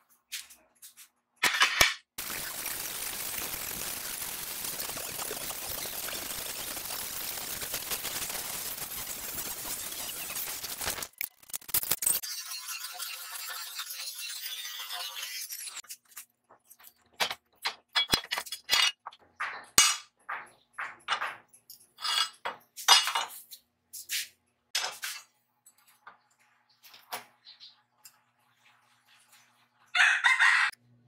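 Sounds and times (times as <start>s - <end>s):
steel pieces clanking together: 17.2s - 20.1s, 21.1s - 23.4s.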